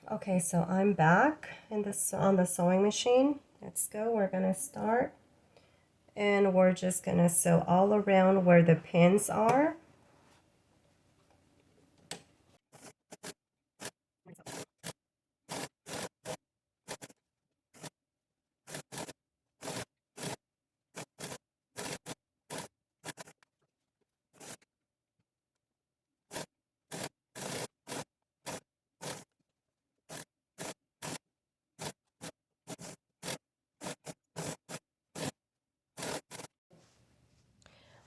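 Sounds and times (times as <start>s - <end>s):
sewing machine stitching: 12.7s - 17.2s, 18.7s - 20.4s, 21.0s - 23.4s, 26.3s - 29.3s, 30.1s - 31.2s, 31.8s - 35.4s, 36.0s - 36.5s.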